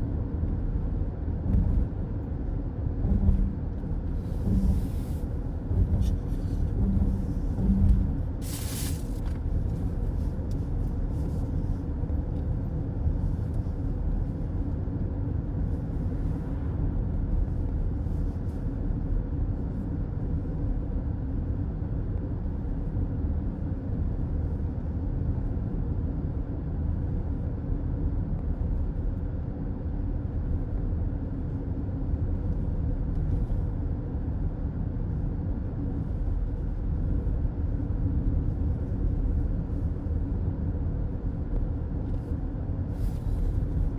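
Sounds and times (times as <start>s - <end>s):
car cabin road noise: 0.6s - 19.2s, 41.2s - 43.9s.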